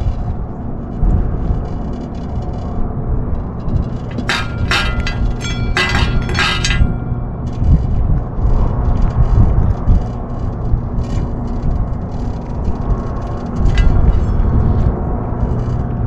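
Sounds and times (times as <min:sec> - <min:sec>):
wind buffeting microphone: 0:00.0 - 0:16.0
bright clinks and rattles: 0:04.0 - 0:07.6.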